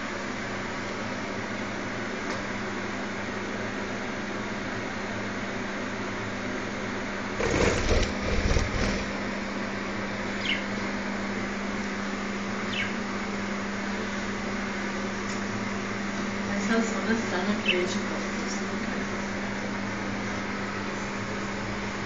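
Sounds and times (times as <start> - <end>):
steady background hum: 0.0 - 22.0
budgie wings flapping: 7.4 - 9.1
high falling budgie chirps: 10.4 - 10.7, 12.7 - 13.0.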